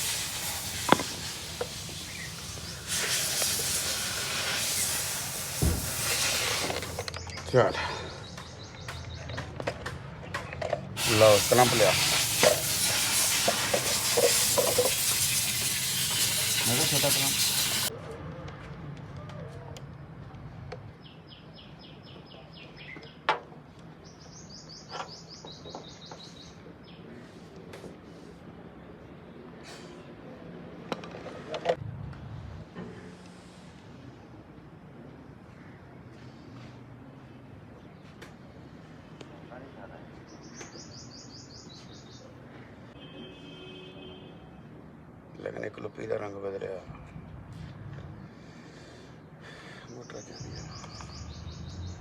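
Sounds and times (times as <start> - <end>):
compressed air hissing: 0.0 - 7.1, 11.0 - 17.9.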